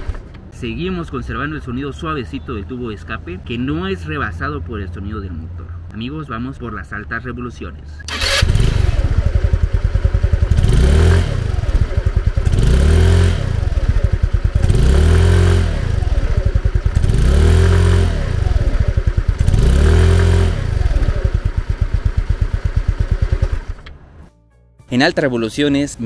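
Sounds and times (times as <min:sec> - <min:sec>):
scooter engine revving: 0:08.1 - 0:24.1.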